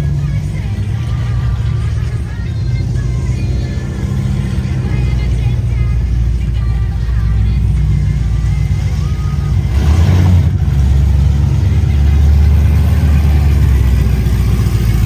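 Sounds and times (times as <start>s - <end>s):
car engine and exhaust rumbling: 0.0s - 15.0s.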